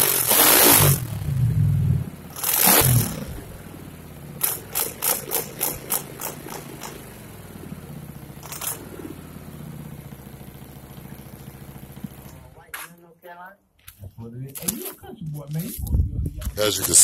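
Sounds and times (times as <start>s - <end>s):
motorcycle engine idling: 0.0s - 12.8s.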